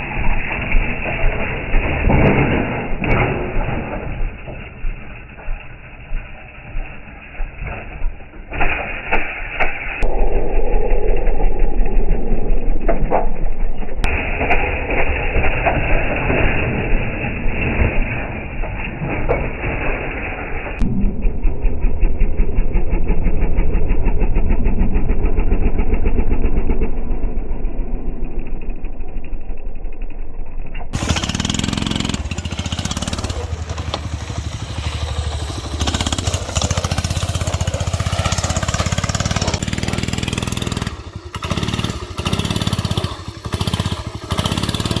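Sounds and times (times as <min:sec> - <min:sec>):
small motorbike engines running: 0:22.1 - 0:45.0.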